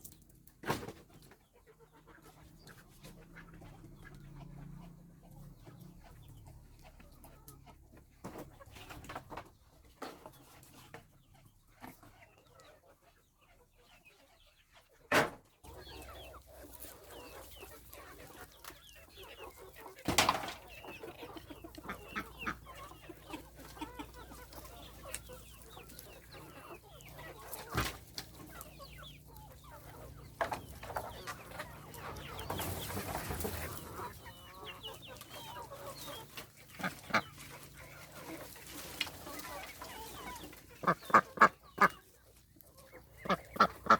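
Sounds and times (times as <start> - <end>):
chickens clucking: 0.0 - 43.9.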